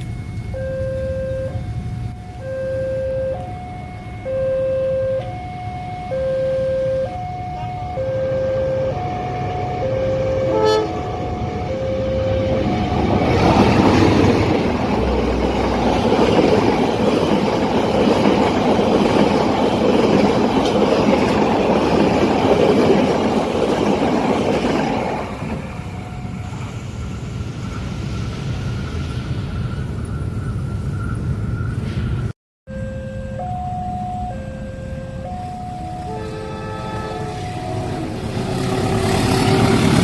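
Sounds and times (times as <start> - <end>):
level-crossing alarm two tones: 0.0 - 17.2, 32.7 - 39.8
train wheels and cars passing: 0.0 - 40.0.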